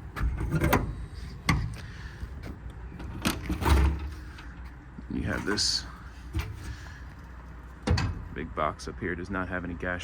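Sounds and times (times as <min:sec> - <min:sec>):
metal doors clicking and clunking: 0:00.0 - 0:01.8, 0:02.5 - 0:04.5, 0:07.8 - 0:08.4.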